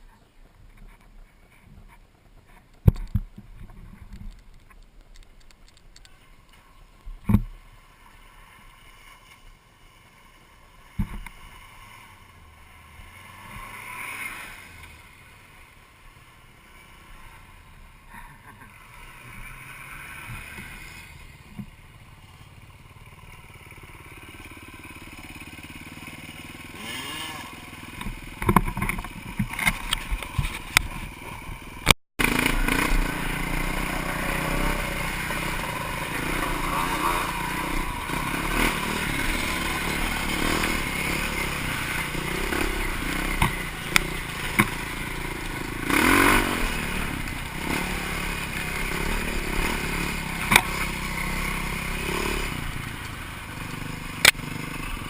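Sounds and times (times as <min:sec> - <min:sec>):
vehicle engine running: 0:20.1 - 0:55.0.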